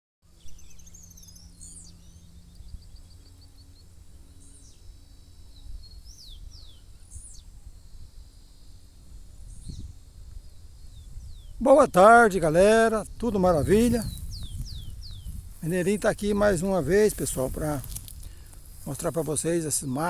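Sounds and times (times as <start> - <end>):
steady low rumble: 0.5 - 20.0
birds calling: 10.9 - 20.0.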